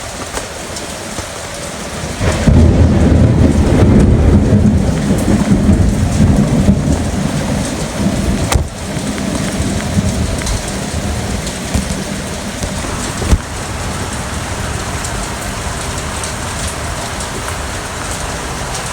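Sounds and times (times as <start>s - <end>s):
heavy rain falling: 0.0s - 18.9s
thunder rolling: 1.8s - 18.9s
sharp thunder crack: 2.2s - 13.7s.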